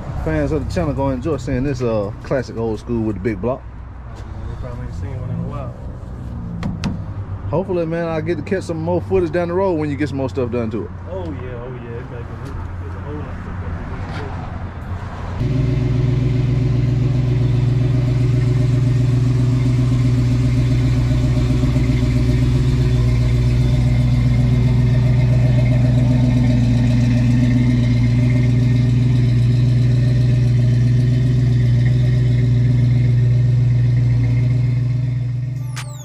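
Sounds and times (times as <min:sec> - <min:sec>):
vehicle engine running: 0:15.4 - 0:36.0.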